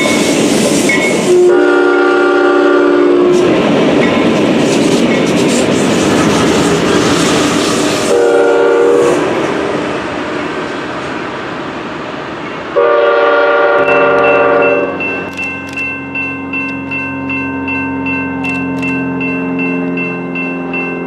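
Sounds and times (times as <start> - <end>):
train rumbling on rails: 0.0 - 21.0
locomotive air horn chord: 1.3 - 3.4, 8.1 - 9.3, 12.8 - 15.0.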